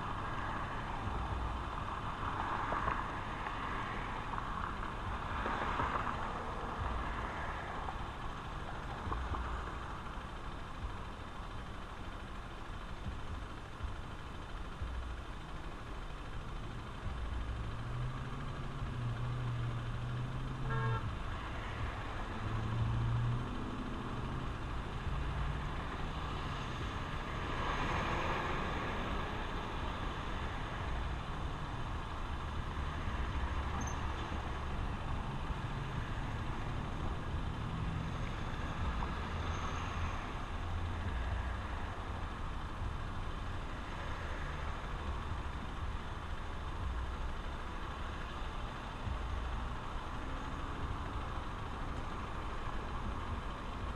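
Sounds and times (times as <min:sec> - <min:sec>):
motorcycle engine running: 0:00.0 - 0:53.9
wind and road noise: 0:00.0 - 0:53.9
horn toot: 0:20.6 - 0:21.1.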